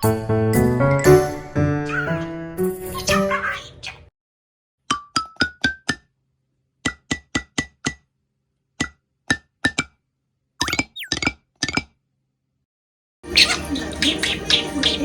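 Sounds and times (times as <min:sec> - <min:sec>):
keyboard tune struck notes: 0:00.0 - 0:02.8
budgerigar whistle: 0:13.3 - 0:15.0.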